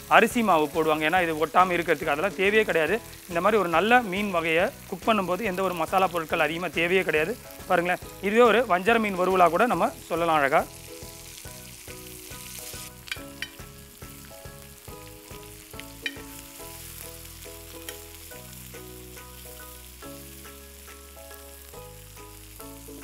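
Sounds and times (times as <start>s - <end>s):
fish sizzling in oil: 0.0s - 23.0s
soft background music: 0.0s - 23.0s
spatula tapping on pan: 16.0s - 16.4s.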